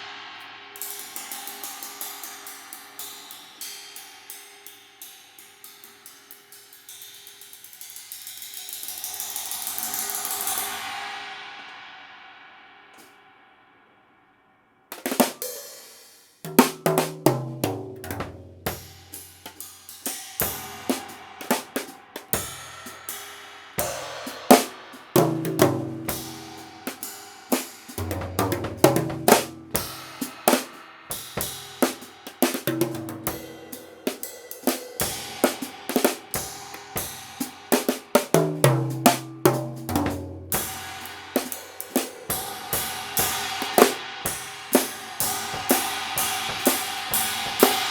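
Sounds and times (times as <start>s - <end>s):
cymbal crashes: 0.0s - 14.3s, 18.0s - 47.9s
snare drum: 14.9s - 23.2s, 23.8s - 47.9s
bass drum: 28.0s - 30.6s.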